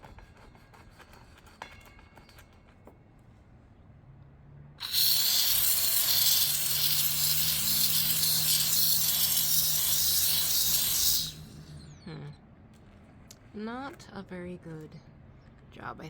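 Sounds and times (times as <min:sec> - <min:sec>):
steam cleaner hissing: 0:04.8 - 0:11.6
low hum: 0:09.6 - 0:13.6.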